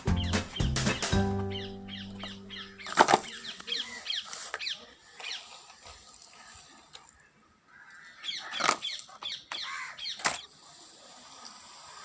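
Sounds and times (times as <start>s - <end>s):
high falling bird-like chirps: 0.0s - 5.6s.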